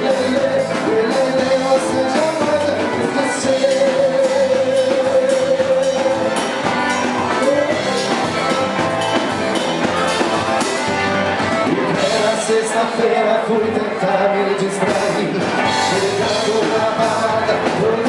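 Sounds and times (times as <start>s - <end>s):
pop song with singing and beat: 0.0s - 6.6s, 11.9s - 18.0s.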